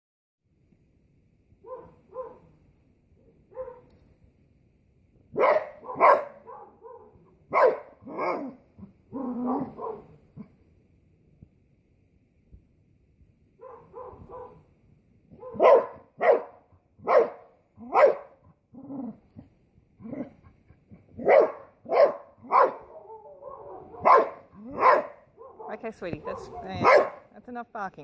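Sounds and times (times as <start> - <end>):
dog barking: 1.6 - 2.5, 3.5 - 3.9, 5.3 - 8.6, 9.3 - 10.2, 13.6 - 14.6, 15.3 - 18.4, 21.2 - 27.3.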